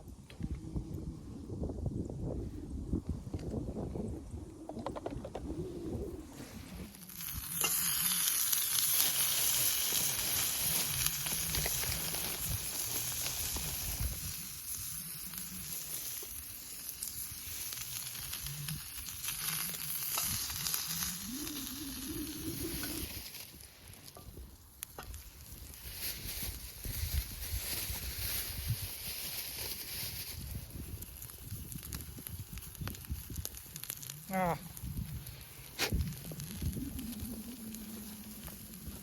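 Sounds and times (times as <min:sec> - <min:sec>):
food sizzling in a frying pan: 0:06.8 - 0:23.5.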